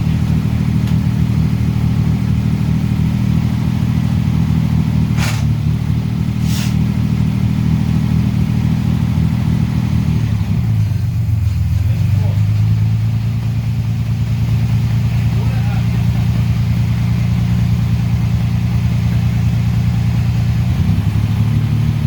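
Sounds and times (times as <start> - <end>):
car engine running: 0.0 - 22.0
short hissing bursts: 5.2 - 5.5, 6.4 - 6.8.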